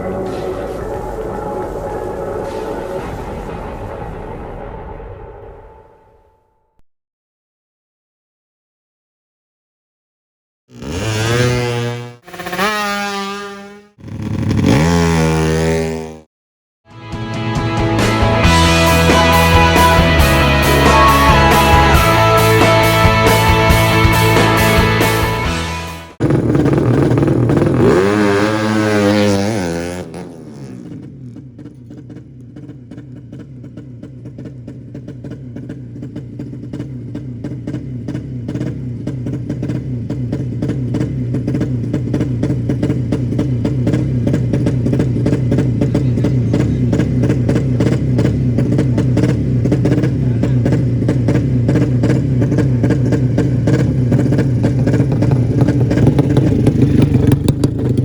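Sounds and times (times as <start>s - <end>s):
motorcycle engine running: 10.7s - 16.3s, 17.8s - 58.0s.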